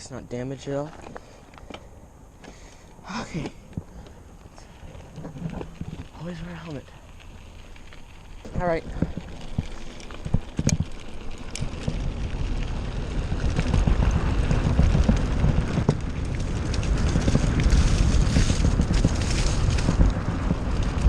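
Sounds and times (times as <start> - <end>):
bike tyres and frame rattling: 0.8 - 21.0
bike clicks and knocks: 3.4 - 21.0
wind on microphone: 8.5 - 21.0.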